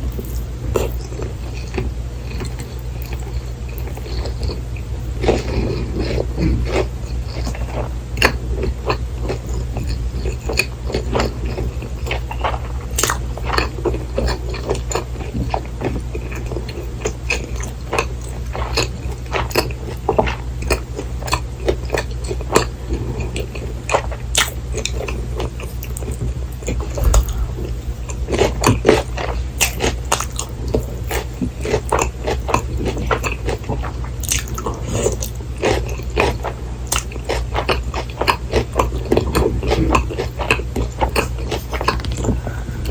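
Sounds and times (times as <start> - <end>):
steady low hum: 26.9 - 29.8
crisp crunching while chewing: 31.6 - 42.3.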